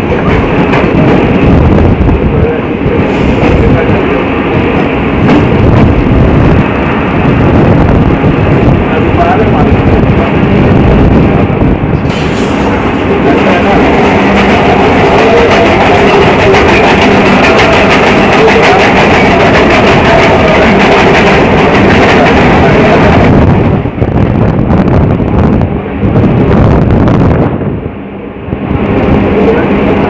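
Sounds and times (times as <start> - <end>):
train wheels rushing on rails: 0.0 - 30.0.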